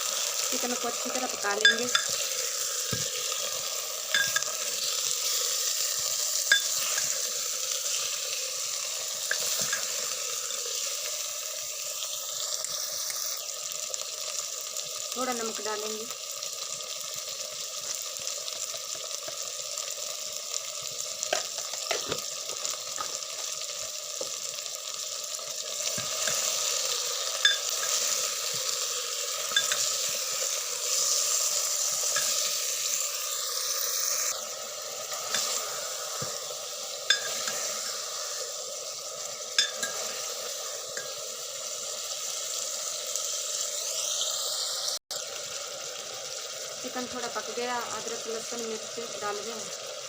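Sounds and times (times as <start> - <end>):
chicken sizzling in oil: 0.0 - 50.0.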